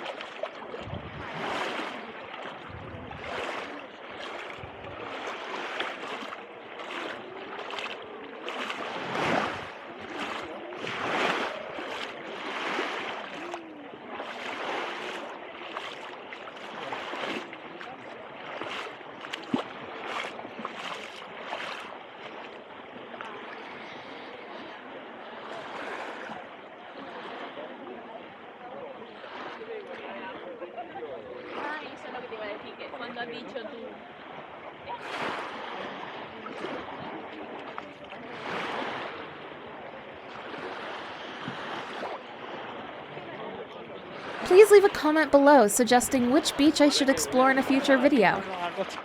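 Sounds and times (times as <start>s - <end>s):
waves washing on shoreline: 0.0s - 27.8s, 29.0s - 30.0s, 34.2s - 43.4s.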